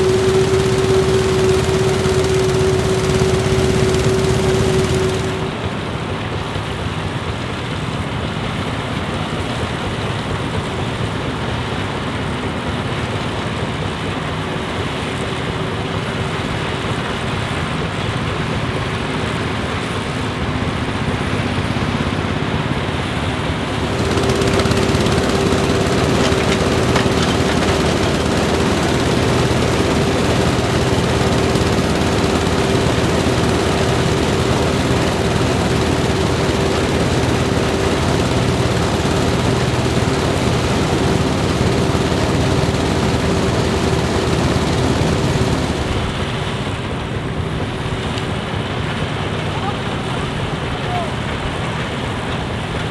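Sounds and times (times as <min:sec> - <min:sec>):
combine harvester running: 0:00.0 - 0:05.7, 0:23.7 - 0:46.7.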